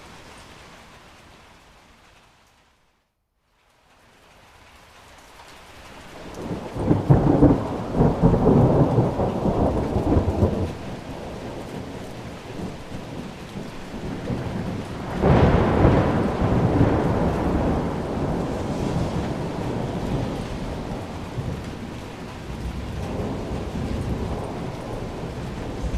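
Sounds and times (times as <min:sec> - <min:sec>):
rain: 0:00.0 - 0:25.9
rolling thunder: 0:06.3 - 0:25.9.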